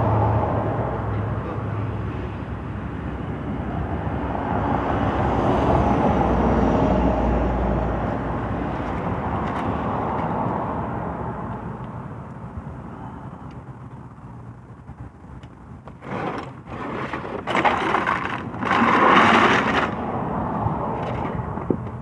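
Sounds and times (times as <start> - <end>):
motor vehicle passing: 15.8 - 22.0.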